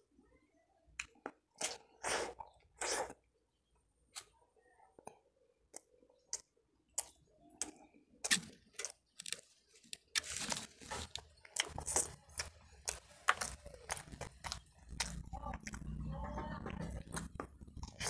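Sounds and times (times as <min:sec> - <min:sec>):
person chewing crunchy food: 0:05.8 - 0:16.1, 0:16.7 - 0:18.0.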